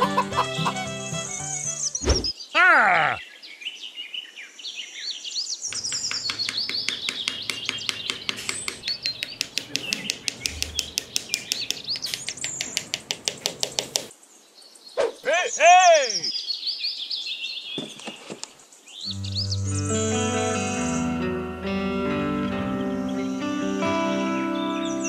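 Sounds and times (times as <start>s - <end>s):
birds chirping and tweeting: 0.0s - 21.4s, 22.4s - 25.0s
fast light taps: 5.7s - 14.1s.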